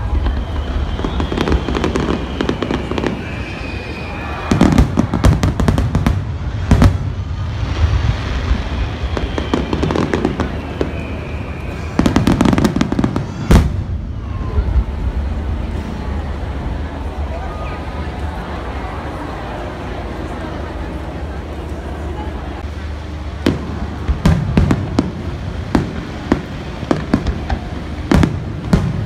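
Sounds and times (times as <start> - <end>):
falling whistling tones: 0.0 - 5.7, 8.3 - 14.9
fireworks bangs and crackles: 0.0 - 29.0
low rumble: 5.0 - 11.8, 13.1 - 29.0.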